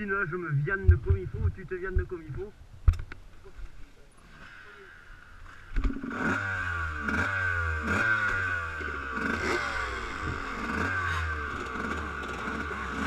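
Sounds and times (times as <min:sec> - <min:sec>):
motocross bike engine revving: 0:04.2 - 0:13.0.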